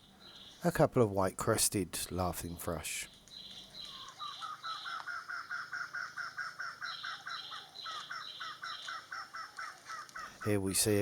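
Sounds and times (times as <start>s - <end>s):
birds calling: 0.0s - 0.8s, 2.1s - 11.0s
high-pitched bird calls: 3.1s - 10.5s.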